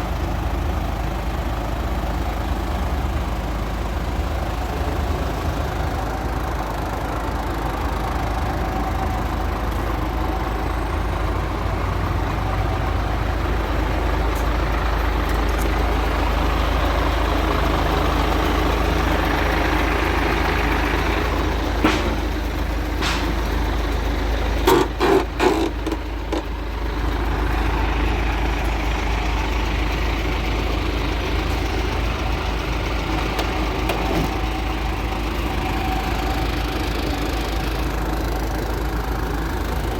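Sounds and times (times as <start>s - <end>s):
truck diesel engine idling: 0.0s - 39.9s
sharp knocks: 21.8s - 22.4s, 23.0s - 23.4s.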